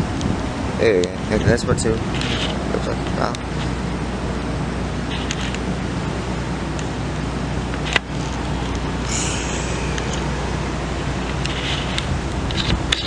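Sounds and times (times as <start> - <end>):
car engine and road noise: 0.0 - 13.0
brief hiss: 9.1 - 10.7.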